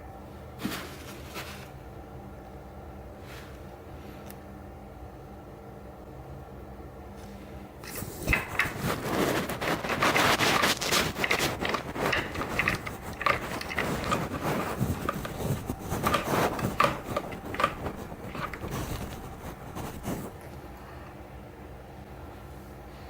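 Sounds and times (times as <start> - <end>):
objects scraping clicking and knocking: 7.9 - 20.4.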